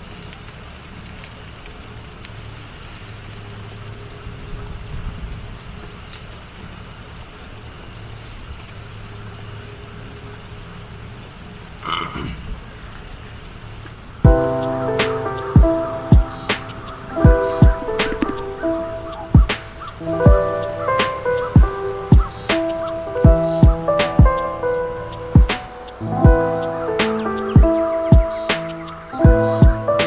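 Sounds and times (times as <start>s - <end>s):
insects buzzing: 0.0s - 30.0s
frog pulsing call: 14.3s - 29.7s.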